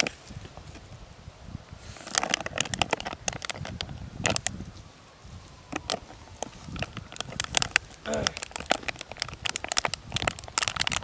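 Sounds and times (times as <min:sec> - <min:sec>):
sharp clicks and crackles: 0:02.0 - 0:04.6, 0:05.7 - 0:11.0.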